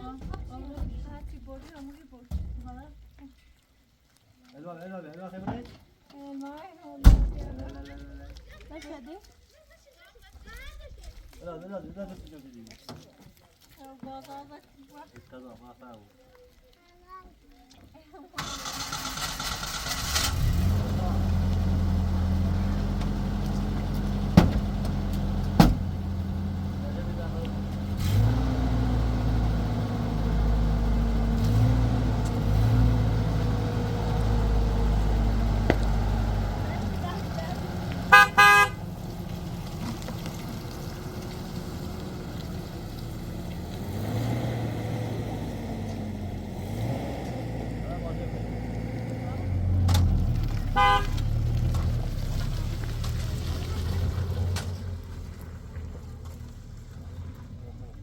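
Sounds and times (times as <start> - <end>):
engine running with low hum: 18.4 - 58.0.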